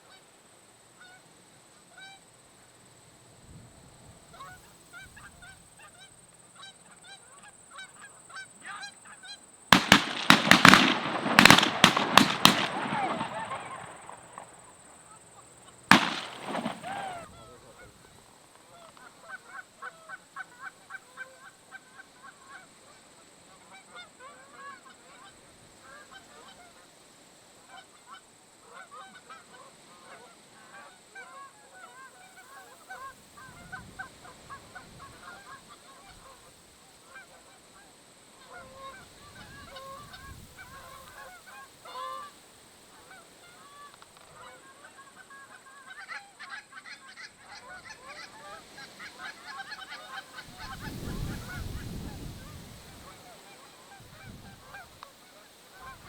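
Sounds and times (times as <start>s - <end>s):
geese honking: 5.2s - 15.2s, 15.9s - 17.6s, 38.4s - 56.0s
shotgun shot: 9.8s - 14.6s, 15.9s - 17.2s.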